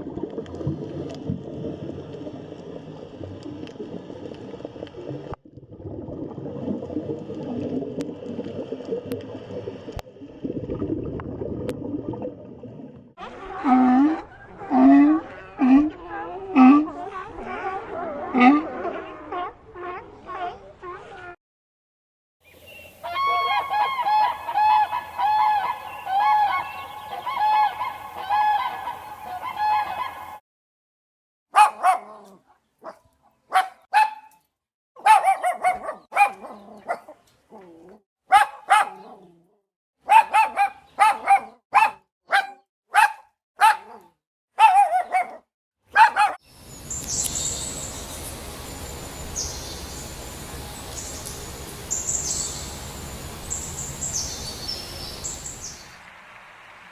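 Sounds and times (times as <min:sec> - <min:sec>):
dog barking: 0:31.5 - 0:34.3, 0:35.0 - 0:37.2, 0:38.3 - 0:39.3, 0:40.0 - 0:46.4
outdoor hiss: 0:46.5 - 0:56.9
high stop-start buzzing: 0:46.6 - 0:55.6.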